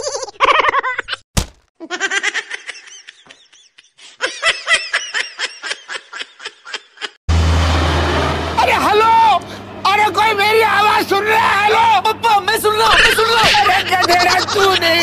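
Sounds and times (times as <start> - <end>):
rhythmic laughter: 12.8 - 15.0.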